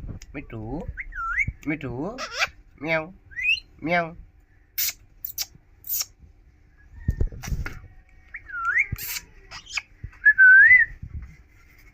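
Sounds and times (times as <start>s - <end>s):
high-pitched bird chirps: 3.3s - 3.7s, 8.3s - 9.9s
parakeet whistling: 3.3s - 3.7s, 8.3s - 10.9s.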